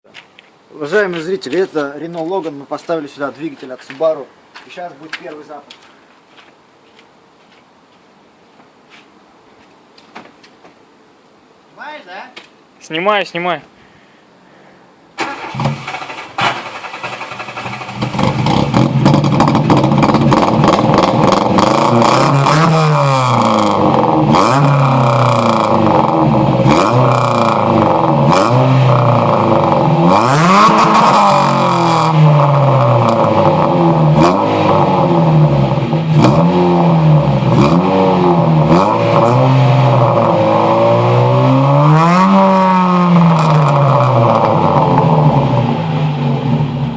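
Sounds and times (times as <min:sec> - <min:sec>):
car engine starting and revving: 0:15.2 - 0:46.9.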